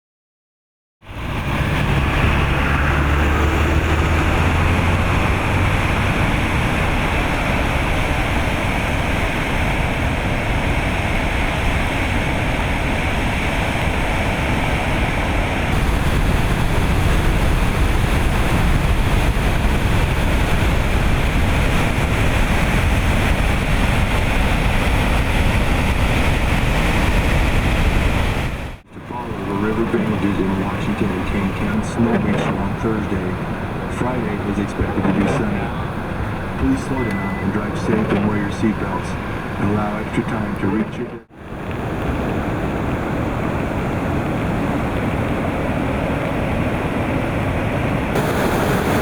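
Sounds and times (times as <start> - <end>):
floodwater rushing: 1.0 - 49.0.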